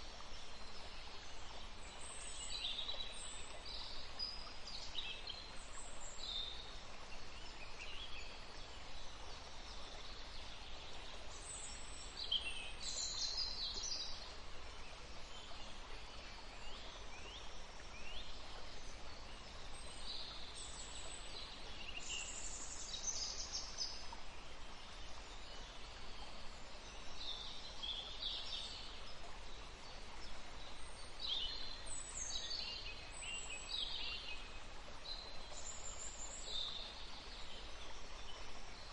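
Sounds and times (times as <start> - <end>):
faint background hiss: 0.0 - 38.9.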